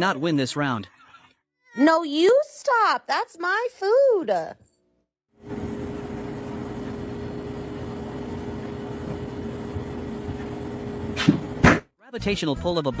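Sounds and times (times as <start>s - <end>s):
steady mechanical hum: 5.4s - 11.7s.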